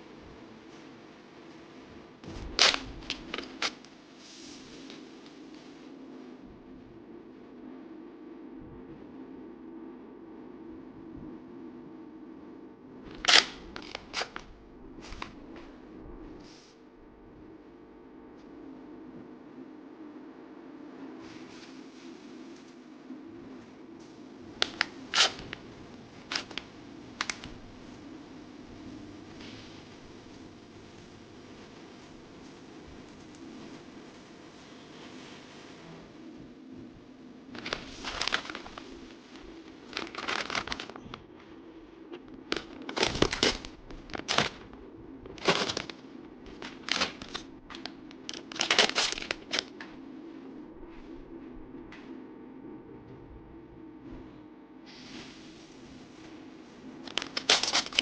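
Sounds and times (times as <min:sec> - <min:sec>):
steady low hum: 0:00.0 - 0:58.0
packaging ripping rustle: 0:02.2 - 0:03.9, 0:13.1 - 0:15.4, 0:24.6 - 0:25.6, 0:26.2 - 0:27.6, 0:37.5 - 0:41.2, 0:42.3 - 0:49.8, 0:57.0 - 0:58.0
packaging clicks and snaps: 0:02.6 - 0:03.9, 0:13.1 - 0:14.5, 0:24.6 - 0:25.6, 0:26.3 - 0:27.6, 0:37.6 - 0:41.2, 0:42.3 - 0:49.9, 0:57.0 - 0:58.0.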